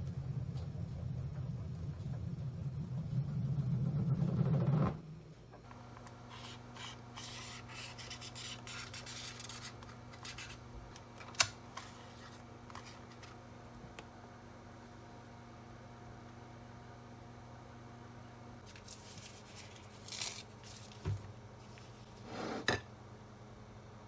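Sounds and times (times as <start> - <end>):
low hum: 0.0 - 11.0
rubbing and scraping of handwork: 6.3 - 10.7.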